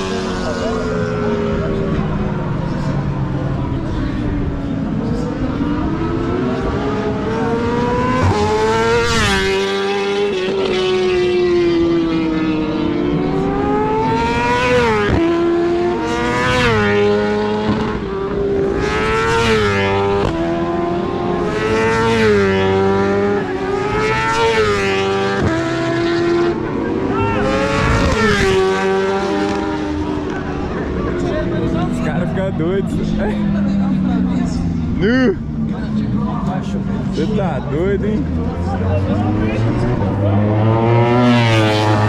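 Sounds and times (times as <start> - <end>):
motorcycle engines revving: 0.0 - 42.0
racing motorcycles passing: 0.0 - 42.0.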